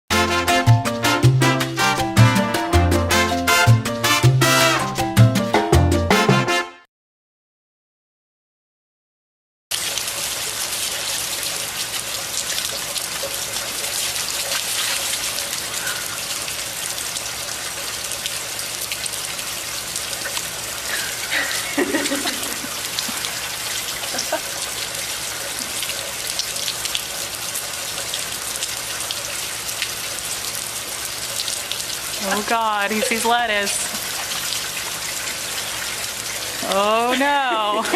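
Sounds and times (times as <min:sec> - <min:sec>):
steady rain hiss: 0:09.8 - 0:37.9.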